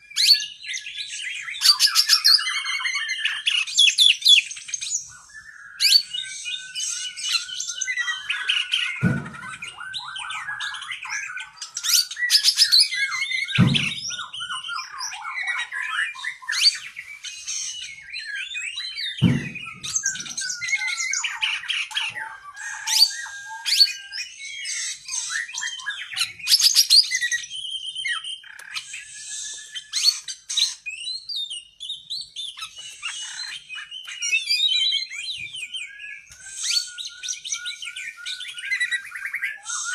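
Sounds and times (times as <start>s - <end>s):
bird singing varied whistles and trills: 0.0s - 39.9s
dull thuds: 9.0s - 9.7s, 13.6s - 14.2s, 19.2s - 20.3s.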